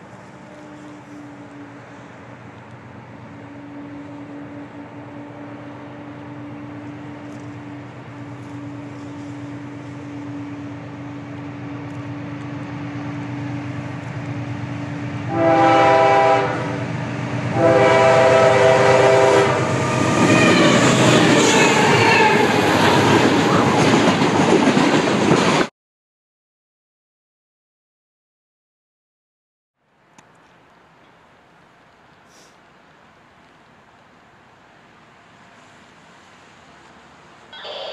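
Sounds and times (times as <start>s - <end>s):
locomotive air horn: 0.0s - 2.1s, 3.4s - 6.8s, 15.3s - 16.9s, 17.5s - 22.6s
train rumble: 0.0s - 25.7s, 30.0s - 37.9s
train wheel and rail noise: 0.0s - 25.7s, 29.9s - 37.9s.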